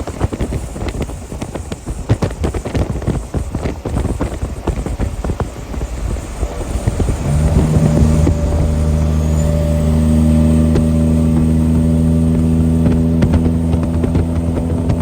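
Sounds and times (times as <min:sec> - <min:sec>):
vehicle droning with held tones: 0:06.6 - 0:15.0.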